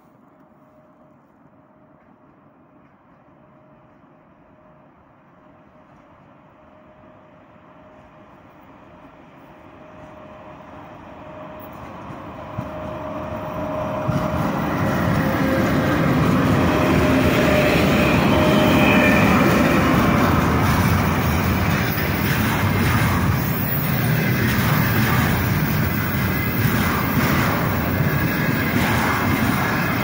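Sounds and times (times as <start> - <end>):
freight wagons rumbling past: 12.2 - 30.0.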